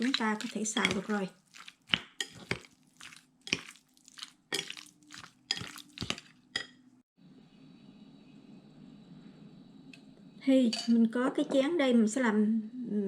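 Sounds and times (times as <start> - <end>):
utensil clinking against a bowl: 0.0 - 3.8, 4.5 - 6.8
room hum: 6.9 - 10.7.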